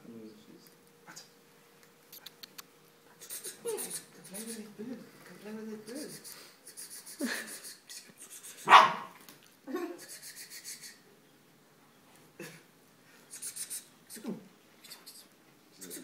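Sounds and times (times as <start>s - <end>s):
dog barking and yapping: 8.6s - 9.2s.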